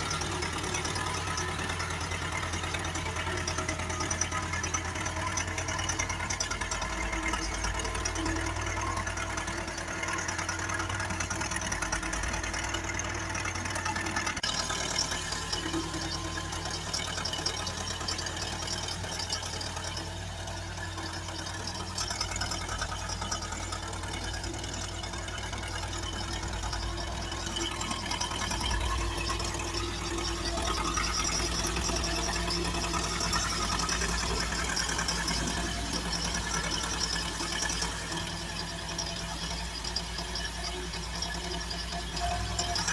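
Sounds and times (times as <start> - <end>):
excavator diesel engine clattering: 0.0 - 42.9.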